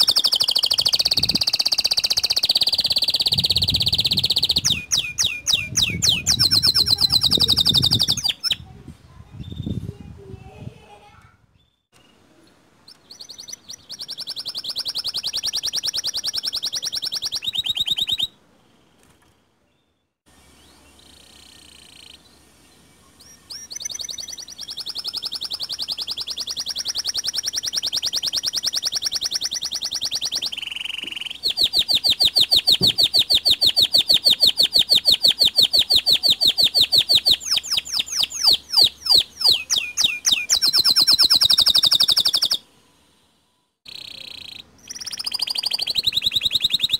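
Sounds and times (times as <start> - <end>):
canary singing rolling trills: 0.0 - 8.7, 11.6 - 42.7, 43.9 - 46.9.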